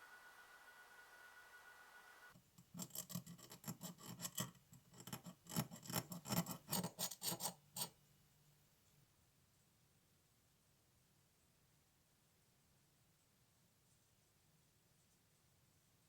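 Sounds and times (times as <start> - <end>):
hand scraping model part: 2.6 - 8.0.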